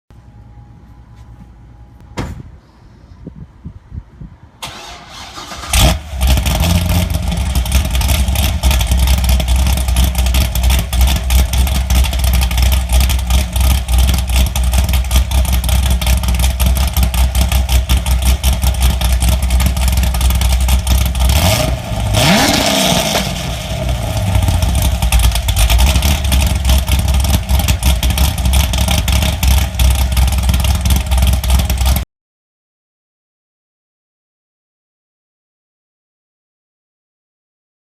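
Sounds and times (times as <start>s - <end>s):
truck engine cranking and starting: 4.6s - 32.0s
engine revving: 4.7s - 32.0s
engine idling with choppy lope: 5.7s - 22.2s, 23.1s - 32.0s.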